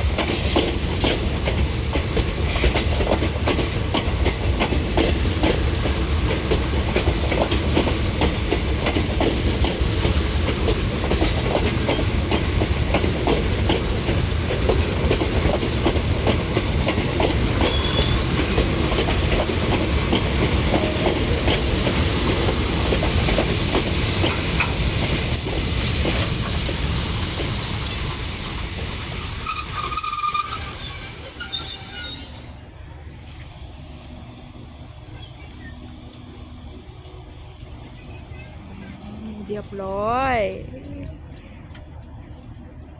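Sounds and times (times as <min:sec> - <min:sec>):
train wheels clicking over rail joints: 0:00.0 - 0:32.2
high wheel squeal: 0:17.6 - 0:18.6, 0:25.4 - 0:33.3.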